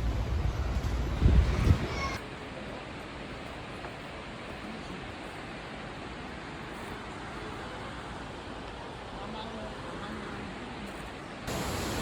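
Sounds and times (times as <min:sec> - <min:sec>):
waterfall rushing: 0:11.5 - 0:12.0.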